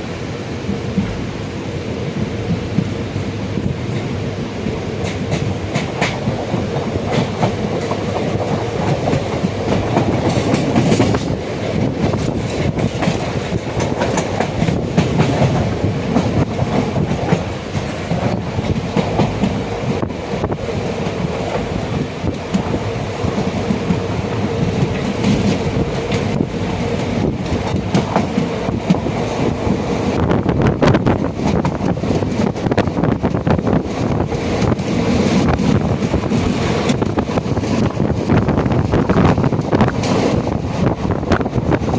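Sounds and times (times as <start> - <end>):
train rumbling: 0.0 - 41.9
wheels clattering over rail joints: 5.0 - 29.7.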